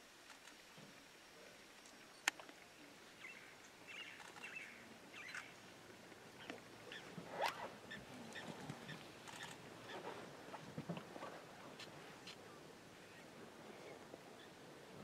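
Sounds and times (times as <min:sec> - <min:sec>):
small birds chirping: 0:03.2 - 0:05.6.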